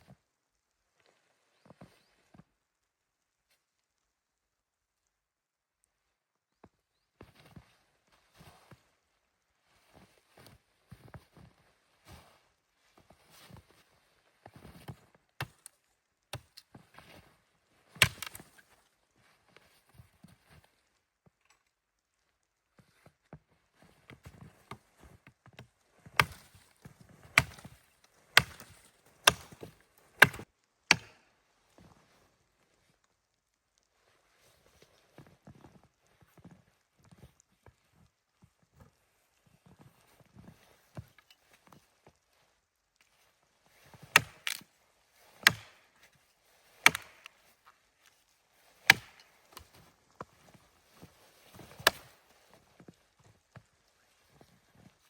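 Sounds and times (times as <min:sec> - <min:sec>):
axe chopping wood: 0:18.0 - 0:18.5, 0:26.2 - 0:26.6, 0:27.4 - 0:27.8, 0:28.4 - 0:31.2, 0:44.1 - 0:44.6, 0:45.4 - 0:45.8, 0:46.8 - 0:47.3, 0:48.8 - 0:49.7, 0:51.8 - 0:52.1.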